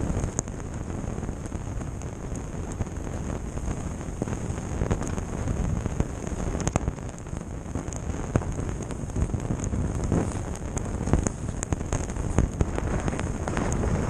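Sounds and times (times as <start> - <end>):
wind on microphone: 0.0 - 14.0
skis running over snow: 8.4 - 14.0.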